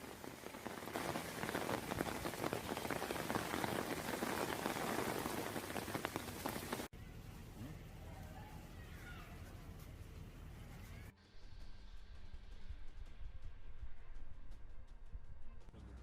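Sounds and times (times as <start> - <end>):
heavy rain pouring: 0.0 - 6.9.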